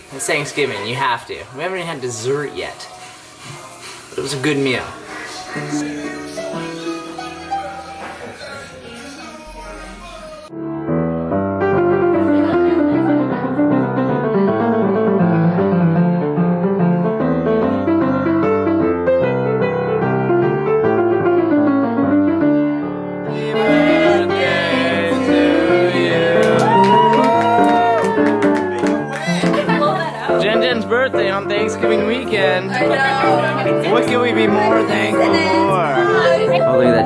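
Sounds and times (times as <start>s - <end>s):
solo piano melody: 5.6s - 8.4s, 10.5s - 37.0s
voices: 23.3s - 37.0s.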